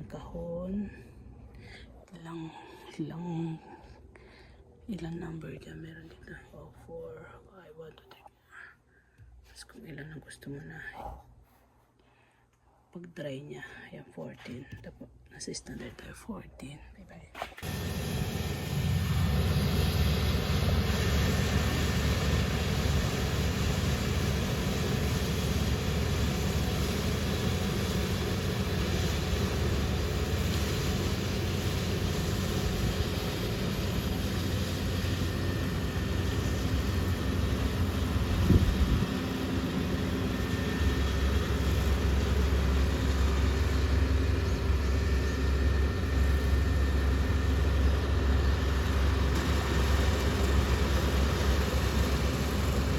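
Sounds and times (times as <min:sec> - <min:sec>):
deeper machine hum: 0:17.6 - 0:52.9
machinery humming: 0:17.6 - 0:52.9.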